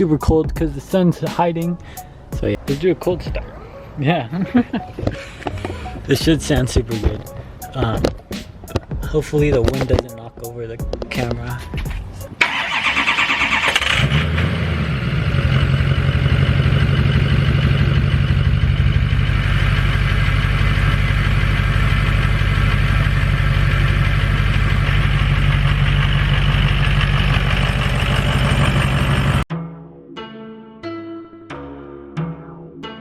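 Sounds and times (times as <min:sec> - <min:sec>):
truck engine idling: 0:11.6 - 0:29.5.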